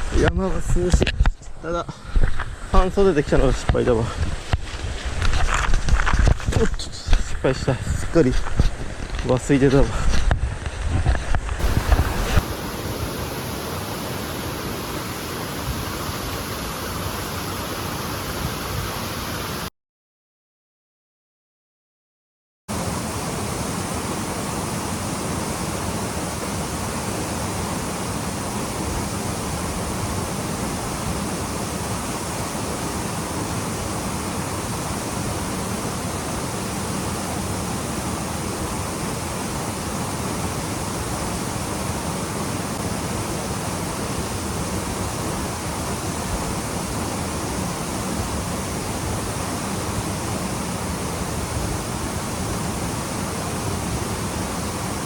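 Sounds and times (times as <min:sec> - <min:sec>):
waterfall rushing: 0:11.6 - 0:19.7, 0:22.7 - 0:55.0.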